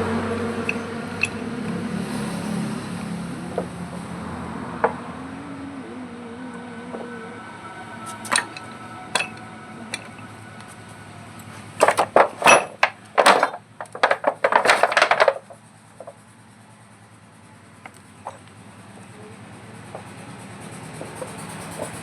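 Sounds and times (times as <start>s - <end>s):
metal tools clinking and clattering: 0.6s - 1.4s, 8.1s - 16.1s.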